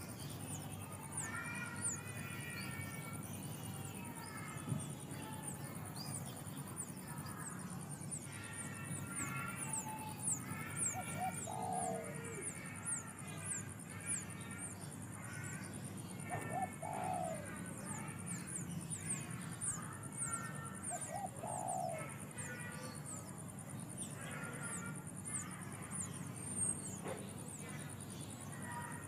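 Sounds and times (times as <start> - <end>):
low cooing bird call: 9.4 - 12.6, 16.2 - 17.8, 20.9 - 22.2.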